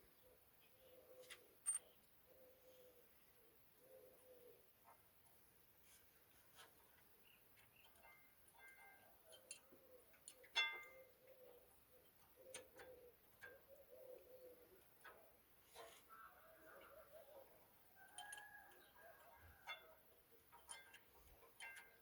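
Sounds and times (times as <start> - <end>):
metal parts clicking and tapping: 1.6 - 2.0, 18.0 - 22.0.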